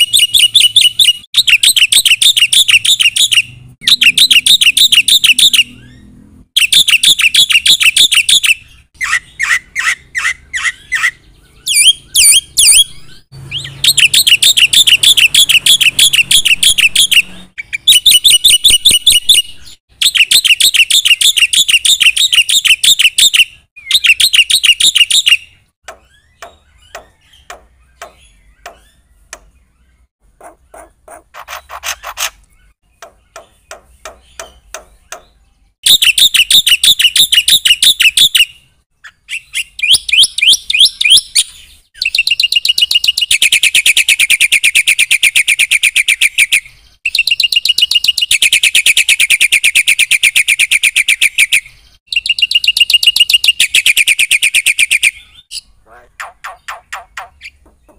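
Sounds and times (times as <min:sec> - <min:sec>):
bird clicks and short calls: 0:30.4 - 0:38.2.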